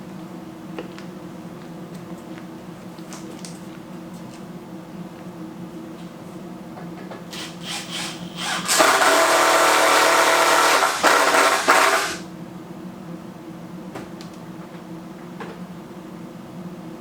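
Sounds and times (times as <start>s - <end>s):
power drill whining: 7.3s - 12.2s.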